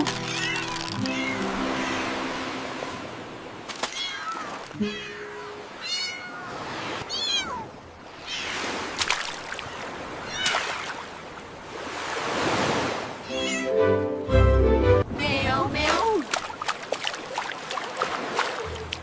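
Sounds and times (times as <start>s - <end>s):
ocean surf: 0.0s - 14.1s.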